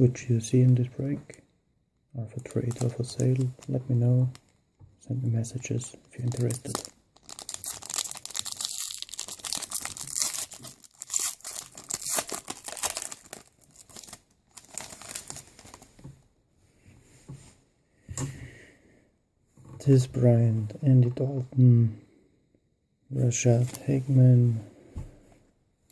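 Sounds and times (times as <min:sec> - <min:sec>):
card pack wrapper tearing and crinkling: 0:02.4 - 0:04.4, 0:06.2 - 0:15.9.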